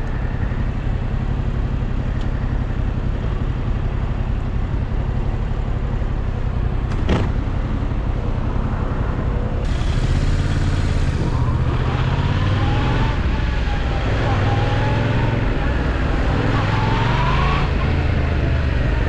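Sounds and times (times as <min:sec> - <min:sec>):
motorcycle engine accelerating: 0:06.7 - 0:19.0.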